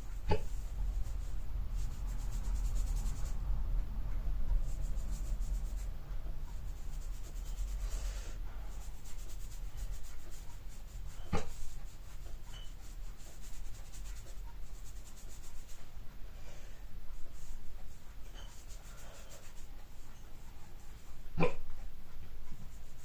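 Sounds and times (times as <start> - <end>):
paintbrush scratching strokes: 0.0 - 23.0
steady low hum: 0.0 - 23.0.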